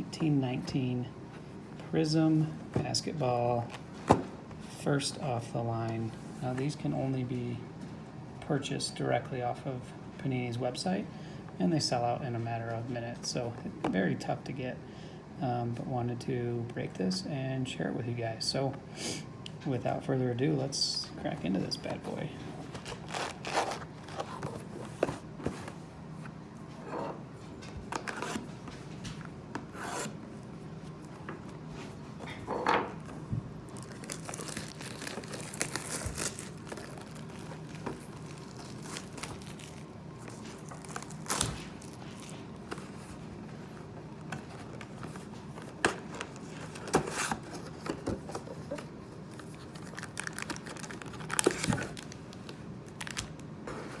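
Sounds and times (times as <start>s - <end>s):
cardboard and plastic crinkling: 21.2s - 25.8s, 33.7s - 43.6s, 44.2s - 54.0s
wrapping tearing: 22.8s - 24.5s, 33.7s - 42.4s, 49.3s - 53.4s.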